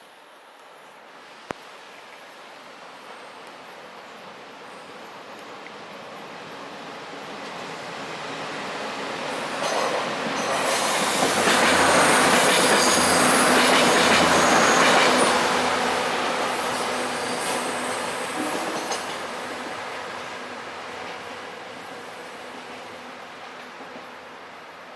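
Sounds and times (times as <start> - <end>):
train passing on rails: 0.1 - 24.9
high wheel squeal: 10.4 - 19.8.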